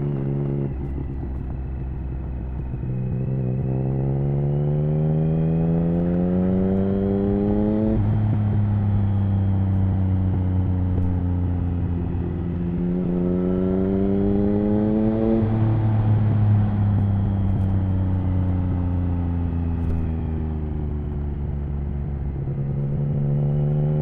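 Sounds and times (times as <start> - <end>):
motorcycle engine revving: 0.0 - 20.8.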